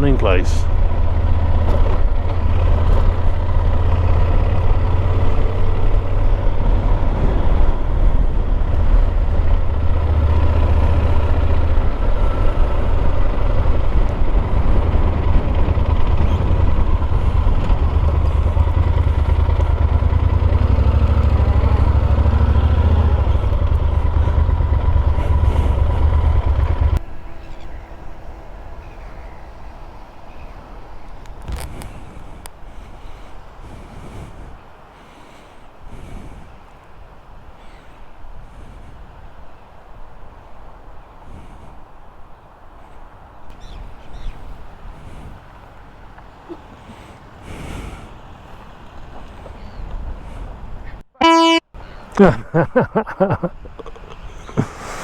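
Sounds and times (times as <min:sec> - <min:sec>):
motorcycle engine running: 0:00.0 - 0:31.7
wind rumble on microphone: 0:00.6 - 0:45.9.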